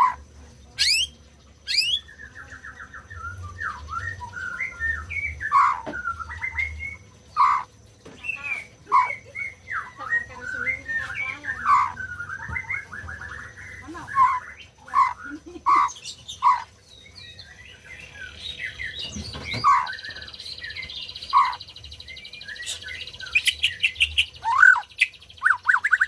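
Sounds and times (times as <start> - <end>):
bird singing whistles and warbles: 0.0 - 26.0.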